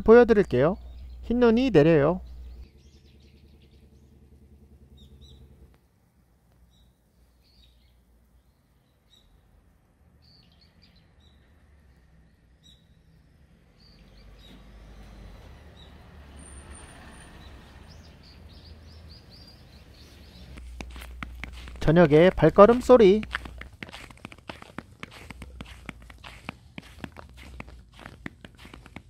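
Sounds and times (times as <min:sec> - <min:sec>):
low steady rumble: 0:00.5 - 0:10.0
bird chirps: 0:00.8 - 0:04.2, 0:04.9 - 0:05.6, 0:06.7 - 0:09.4, 0:13.8 - 0:28.7.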